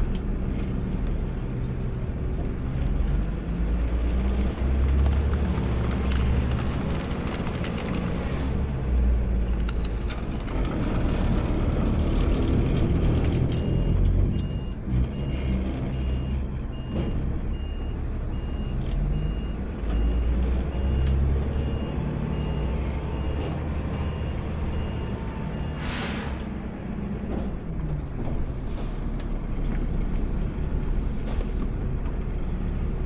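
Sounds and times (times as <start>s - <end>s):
garbage truck engine rumbling: 0.0s - 33.0s
reversing alarm beeping: 13.5s - 26.5s.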